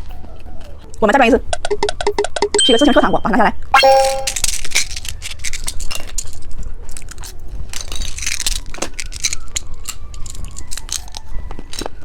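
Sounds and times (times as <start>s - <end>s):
candy crunching while chewed: 4.6s - 12.0s.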